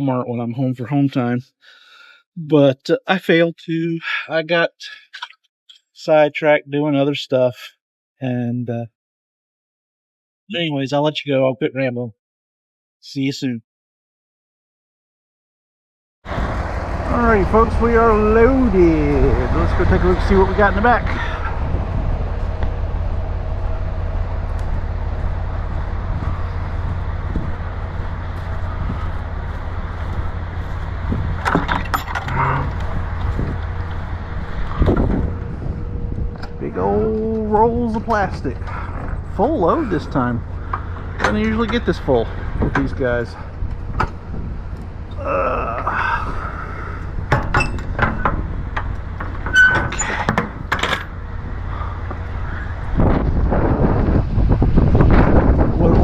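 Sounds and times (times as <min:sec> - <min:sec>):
diesel truck engine idling: 0:16.3 - 0:45.1, 0:45.9 - 0:49.4, 0:50.5 - 0:54.5
low steady rumble: 0:16.3 - 0:56.0
metallic clanks and rattles: 0:20.3 - 0:36.6, 0:47.3 - 0:51.6.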